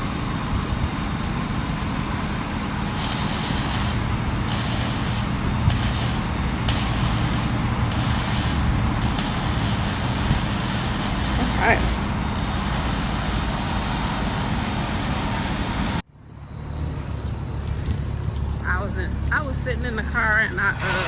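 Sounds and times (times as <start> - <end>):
steady low hum: 0.0 - 16.0
welder sizzling hiss: 2.9 - 16.0.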